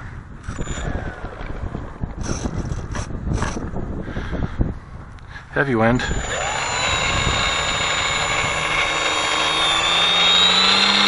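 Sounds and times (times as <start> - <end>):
wind noise on microphone: 0.0 - 11.0
model plane motor whining: 6.0 - 11.0.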